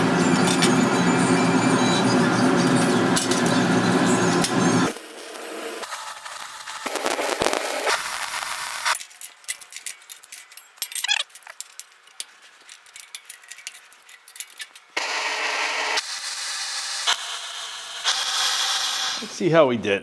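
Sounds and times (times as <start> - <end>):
steel tools clinking: 9.0 - 15.0.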